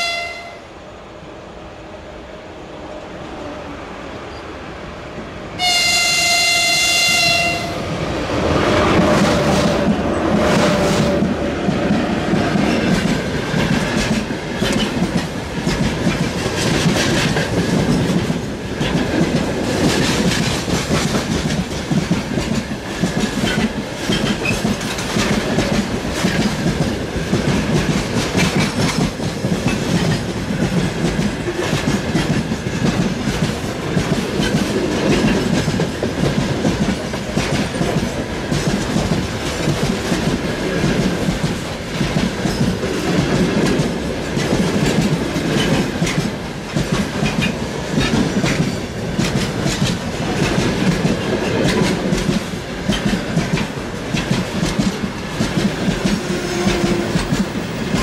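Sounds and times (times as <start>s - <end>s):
locomotive horn blast: 0.0s - 0.7s, 5.6s - 7.9s
train wheels clacking over rail joints: 8.7s - 58.0s.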